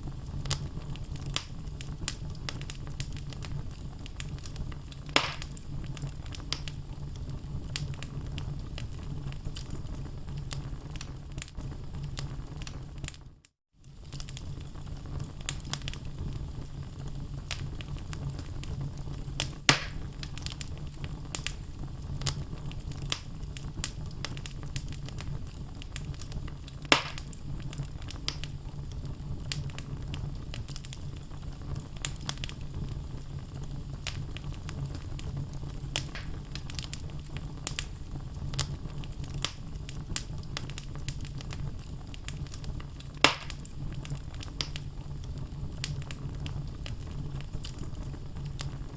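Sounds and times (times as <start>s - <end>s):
fire crackling: 0.0s - 48.9s
loud wood pops: 5.2s - 5.5s, 19.7s - 20.0s, 26.9s - 27.3s, 43.2s - 43.6s.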